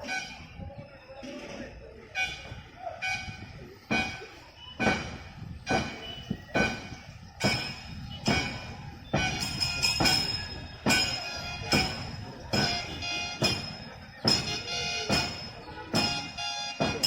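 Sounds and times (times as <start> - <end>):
sharp rowing beat: 3.9 - 17.0.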